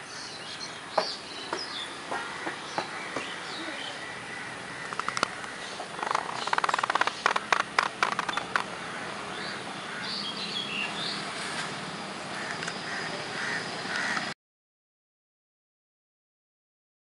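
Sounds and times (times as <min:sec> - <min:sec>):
birds calling: 0:00.0 - 0:14.4
quick run of clicks: 0:04.8 - 0:08.7.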